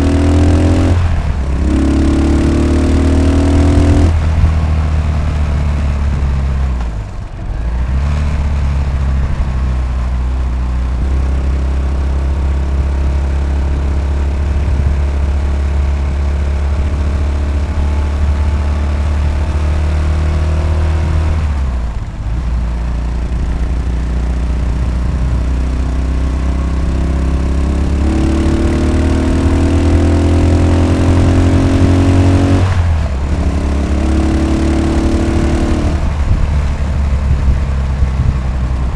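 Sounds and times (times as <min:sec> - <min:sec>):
motorcycle engine under way: 0:00.0 - 0:38.9.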